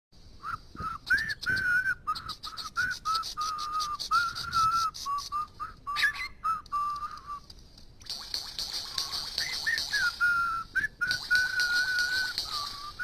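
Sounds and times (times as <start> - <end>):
bird whistling short notes: 0.8 - 7.5
high bird chirping: 1.0 - 7.5, 8.6 - 13.0.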